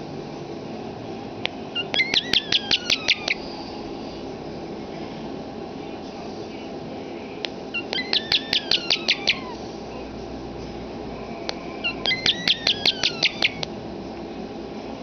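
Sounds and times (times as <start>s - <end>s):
starling clicking: 1.4s - 3.4s, 11.5s - 13.8s
starling whistled notes: 1.8s - 3.5s, 7.8s - 9.6s, 11.8s - 13.6s.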